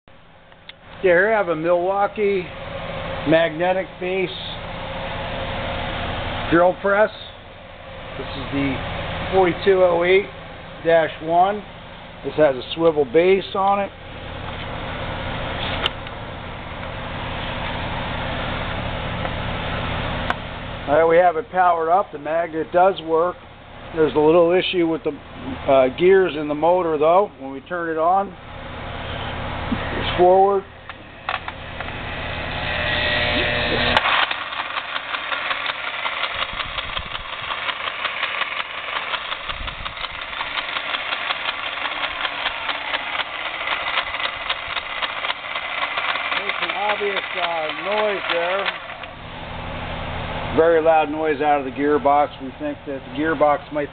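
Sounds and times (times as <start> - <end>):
drill press motor running: 30.8 - 50.4
sharp click: 30.9 - 32.0.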